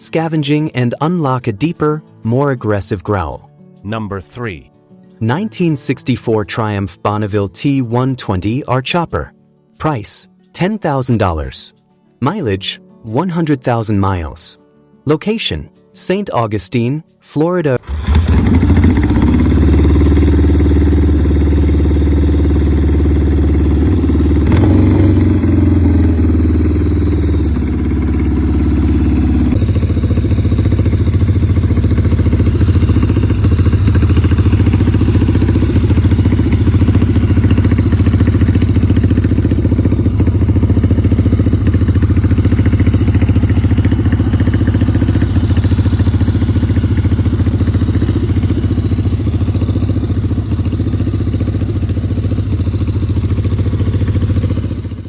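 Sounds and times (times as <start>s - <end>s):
motorcycle engine running: 17.8s - 55.0s.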